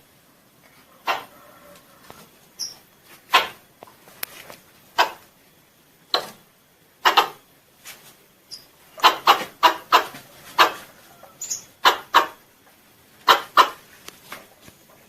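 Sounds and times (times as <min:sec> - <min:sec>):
squirrel calling: 0:02.6 - 0:03.6, 0:07.0 - 0:07.4, 0:08.5 - 0:12.4, 0:13.2 - 0:13.8.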